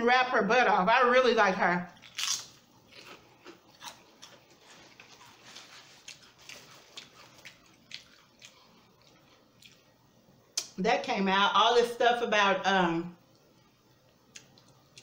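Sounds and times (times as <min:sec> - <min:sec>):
chewing with mouth closed: 0:02.0 - 0:09.9.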